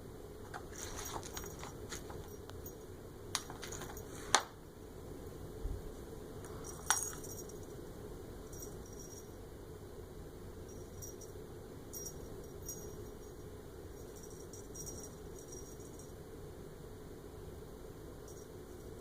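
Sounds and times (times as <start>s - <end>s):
steady low hiss: 0.0s - 19.0s
light clicks and metallic clinks: 6.5s - 7.8s, 8.5s - 9.3s, 10.7s - 13.4s, 14.0s - 16.2s.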